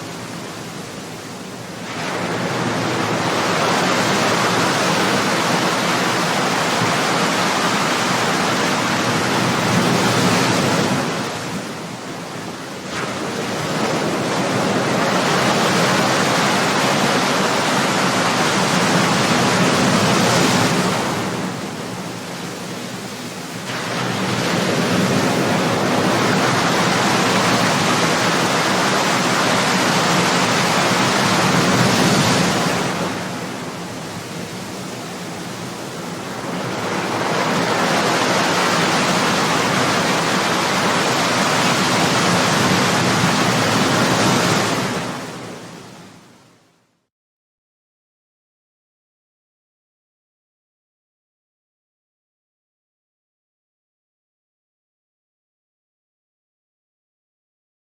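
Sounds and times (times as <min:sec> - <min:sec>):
ocean waves breaking: 0:00.0 - 0:46.6.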